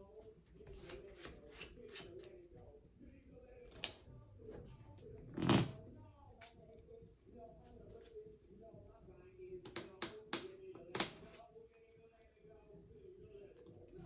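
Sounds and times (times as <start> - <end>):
cards rustling and tapping: 0.7 - 2.4, 9.7 - 11.4.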